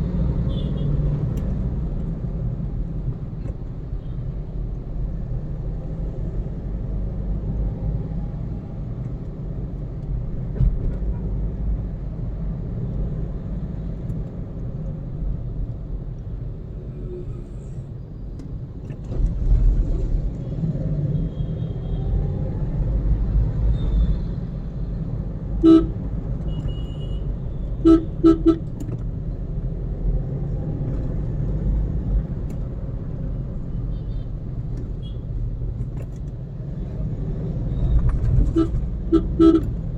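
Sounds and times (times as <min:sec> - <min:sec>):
car horns honking: 0:00.5 - 0:01.0, 0:25.6 - 0:28.9, 0:38.4 - 0:39.8.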